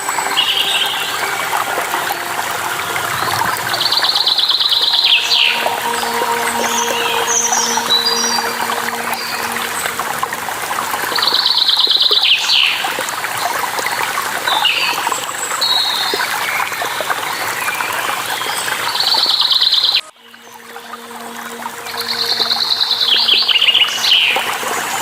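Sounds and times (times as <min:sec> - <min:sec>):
running water of stream: 0:00.0 - 0:25.0.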